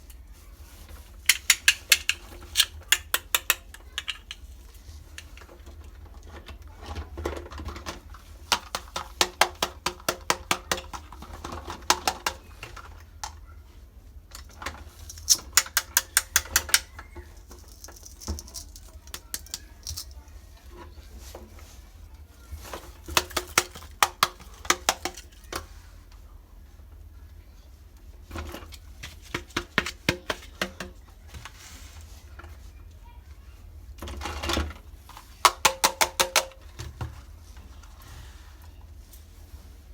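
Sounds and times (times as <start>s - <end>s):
soft handling noise: 0.0s - 9.2s, 10.9s - 35.6s, 36.5s - 39.9s
plastic toy pieces clicking: 1.3s - 4.5s, 15.1s - 20.2s.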